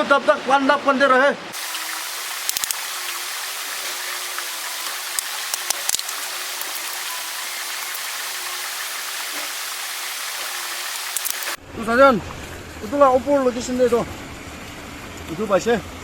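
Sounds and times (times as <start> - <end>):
stream flowing: 0.1 - 11.6
sharp clicks: 2.4 - 2.9, 4.8 - 6.8, 11.1 - 11.6.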